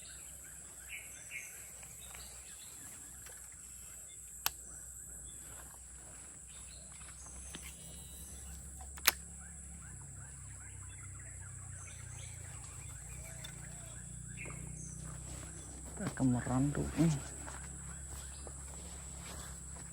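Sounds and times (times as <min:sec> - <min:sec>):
insects droning: 0:00.0 - 0:19.9
sharp clicks: 0:03.0 - 0:04.9, 0:07.1 - 0:10.0, 0:12.0 - 0:14.1.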